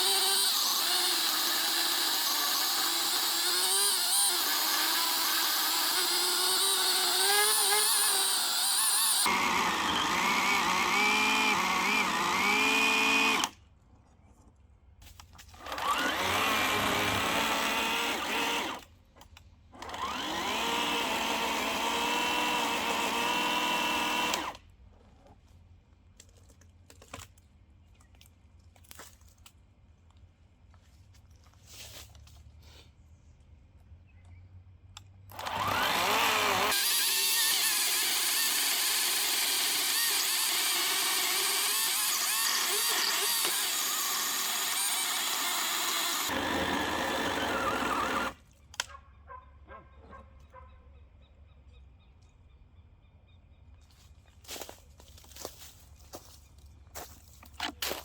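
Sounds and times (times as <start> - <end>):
electric chainsaw whirring: 0.0 - 13.6, 15.6 - 18.8, 19.8 - 24.6, 35.3 - 48.4.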